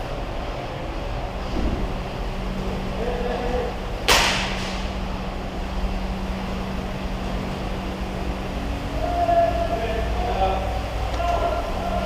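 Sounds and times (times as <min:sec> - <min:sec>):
steady low rumble: 0:00.0 - 0:12.0
sharp crack: 0:04.0 - 0:05.0.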